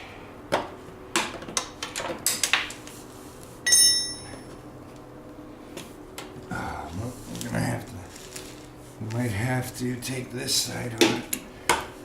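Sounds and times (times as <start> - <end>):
ringing metal clink: 3.7 - 4.5.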